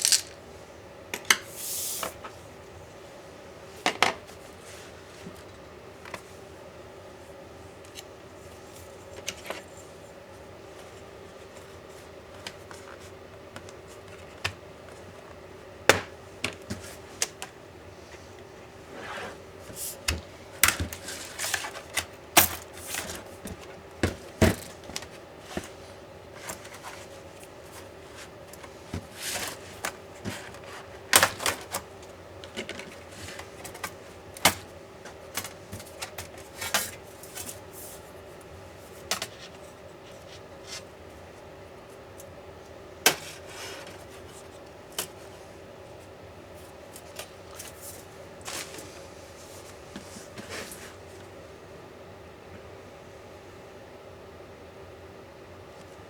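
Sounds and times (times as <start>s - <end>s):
tools and metal parts clattering: 0.0s - 0.4s.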